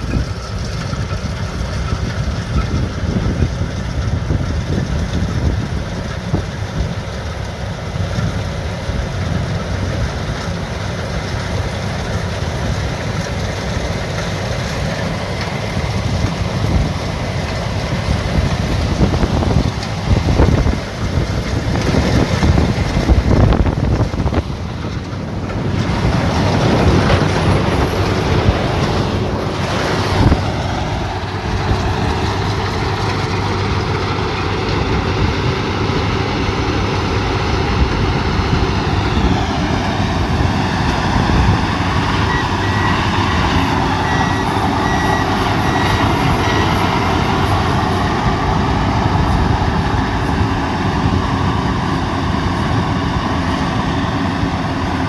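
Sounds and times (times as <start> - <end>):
combine harvester running: 0.0 - 55.0
high electronic warning beeps: 42.1 - 48.4.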